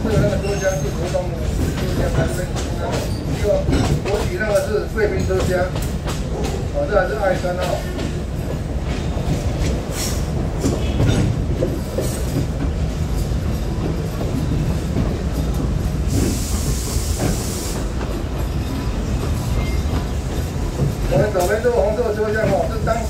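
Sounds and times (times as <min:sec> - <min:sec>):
train rumbling: 0:00.0 - 0:23.0
hiss: 0:15.9 - 0:18.0.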